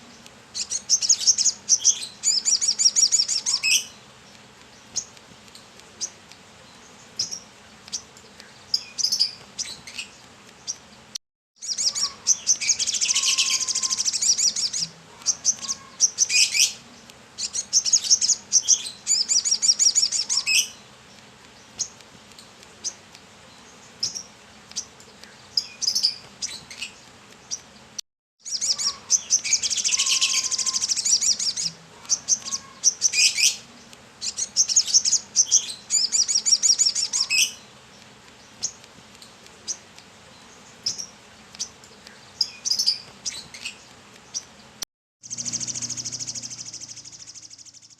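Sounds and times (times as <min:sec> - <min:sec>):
bird chirping and trilling: 0:00.6 - 0:04.0, 0:11.6 - 0:16.8, 0:17.4 - 0:20.8, 0:28.4 - 0:37.6, 0:45.2 - 0:47.9.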